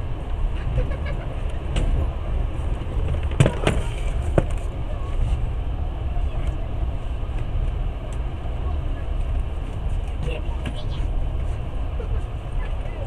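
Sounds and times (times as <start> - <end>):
train carriage rumble: 0.0 - 13.0.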